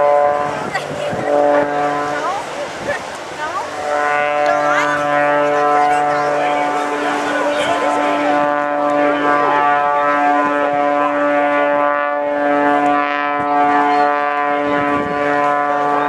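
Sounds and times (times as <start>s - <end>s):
propeller plane engine droning: 0.0s - 16.0s.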